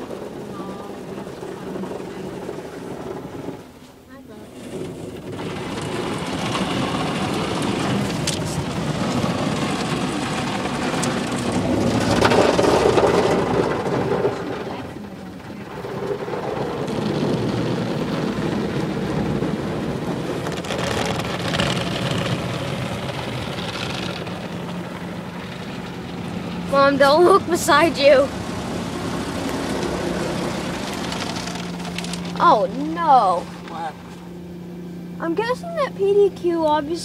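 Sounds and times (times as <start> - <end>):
water spraying on car body: 0.0 - 34.2.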